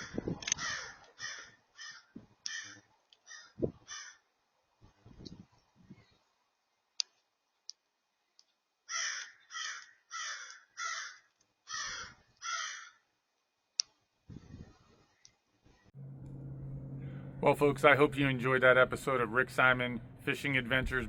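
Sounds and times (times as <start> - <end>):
bird cawing: 0.0 - 4.4, 8.8 - 13.2.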